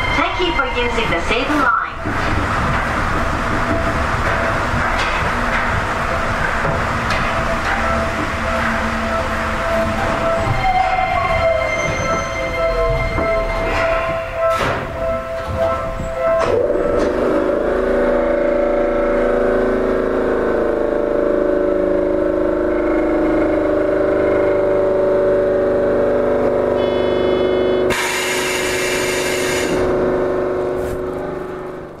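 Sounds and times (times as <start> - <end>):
equipment humming: 0.0 - 11.6
loud air hiss: 27.9 - 29.8.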